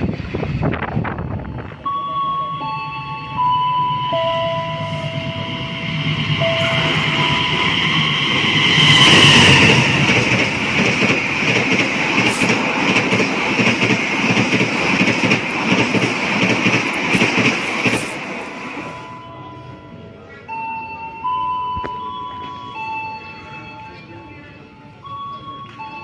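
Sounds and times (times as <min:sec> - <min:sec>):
locomotive passing at speed: 0:04.1 - 0:19.0
train wheels clattering on rails: 0:05.5 - 0:18.9.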